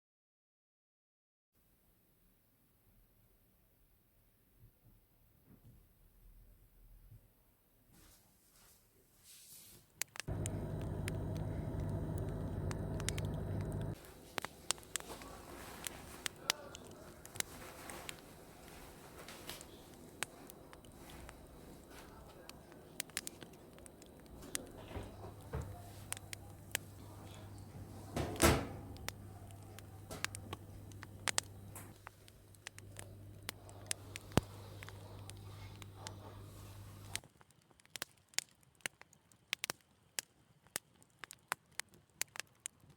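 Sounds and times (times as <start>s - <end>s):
light clicks and taps: 10.1s - 27.5s
low steady hum: 10.3s - 37.2s.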